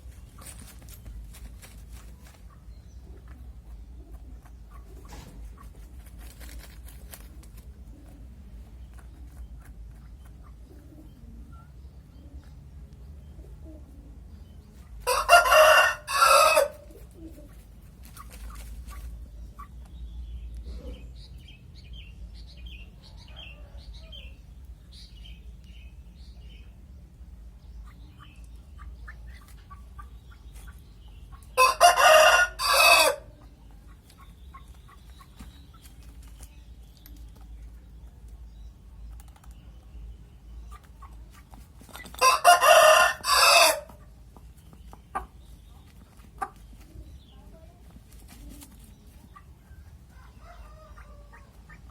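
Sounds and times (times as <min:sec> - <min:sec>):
hen clucking: 0:02.4 - 0:06.0, 0:27.8 - 0:35.9, 0:40.6 - 0:51.9
rooster crowing: 0:15.1 - 0:16.8, 0:31.6 - 0:33.3, 0:42.2 - 0:43.9.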